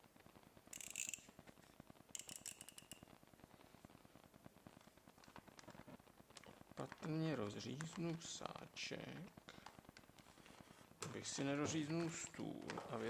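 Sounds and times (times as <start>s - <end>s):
knife clicks: 2.2s - 3.0s.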